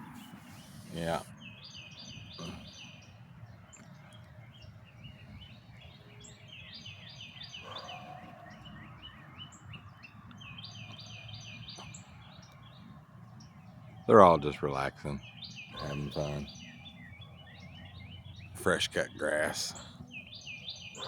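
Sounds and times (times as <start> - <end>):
songbird chirping: 0.0 - 21.0.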